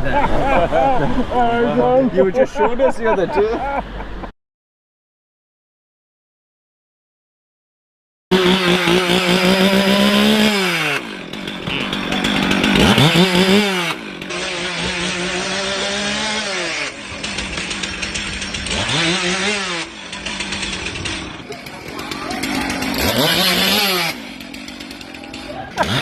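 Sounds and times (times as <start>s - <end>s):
chainsaw engine revving: 8.3s - 26.0s.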